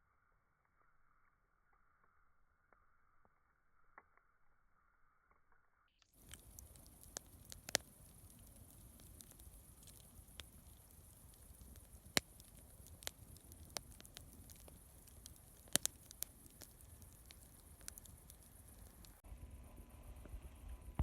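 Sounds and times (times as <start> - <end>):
campfire crackling and popping: 6.2 - 19.3
fire hissing: 6.2 - 20.6.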